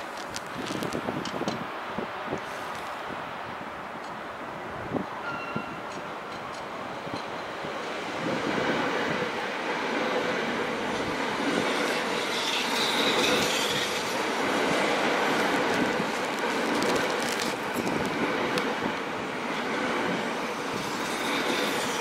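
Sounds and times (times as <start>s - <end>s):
train wheels rumbling on rail: 0.0s - 22.0s
brief high squeal: 5.2s - 5.8s.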